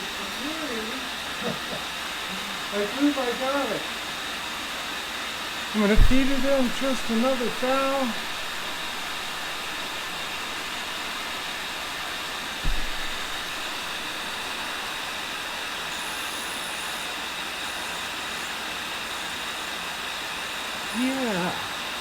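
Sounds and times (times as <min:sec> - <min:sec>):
grinder wheel grinding metal: 0:05.8 - 0:22.0
low thump: 0:06.0 - 0:14.8.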